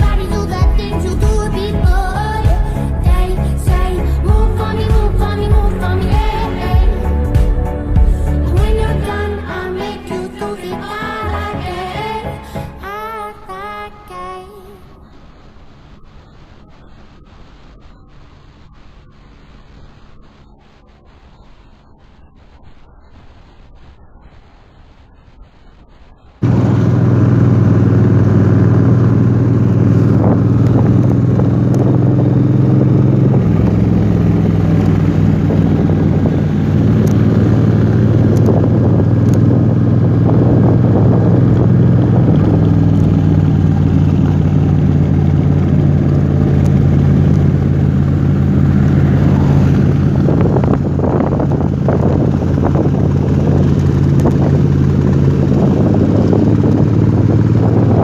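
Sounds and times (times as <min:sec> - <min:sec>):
motorcycle engine running: 0:26.4 - 0:58.0.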